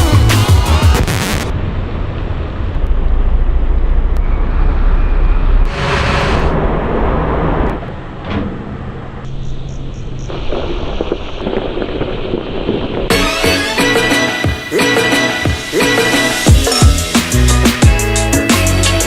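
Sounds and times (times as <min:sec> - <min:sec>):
music: 0:00.0 - 0:01.5, 0:13.1 - 0:19.0
low engine rumble: 0:00.0 - 0:13.1.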